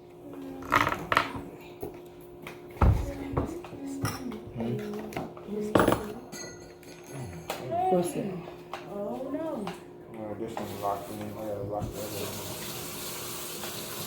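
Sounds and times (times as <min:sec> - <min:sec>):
utensils and bowl clattering: 0:00.6 - 0:08.9, 0:09.6 - 0:12.7.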